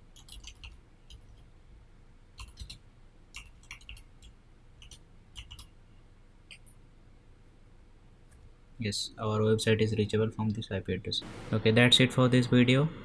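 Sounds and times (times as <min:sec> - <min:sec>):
computer keys clicking: 0:00.1 - 0:01.5, 0:02.4 - 0:05.8.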